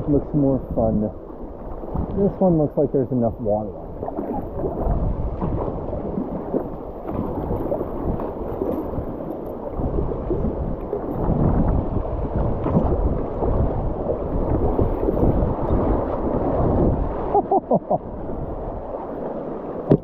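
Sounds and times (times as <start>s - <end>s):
river water rushing and splashing: 0.0s - 20.0s.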